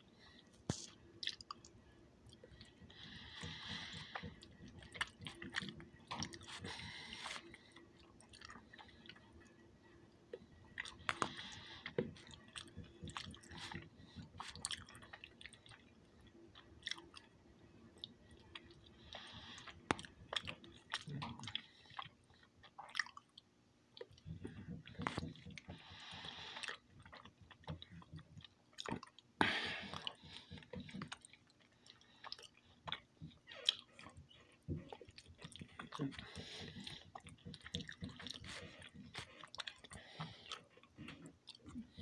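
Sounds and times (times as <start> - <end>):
wet chewing sounds: 0.1 - 42.0.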